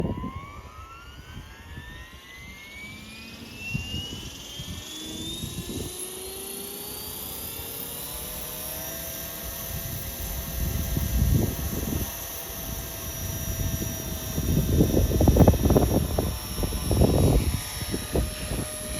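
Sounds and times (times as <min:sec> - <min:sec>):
helicopter rotor whine: 0:00.0 - 0:18.9
wind buffeting microphone: 0:09.4 - 0:18.9.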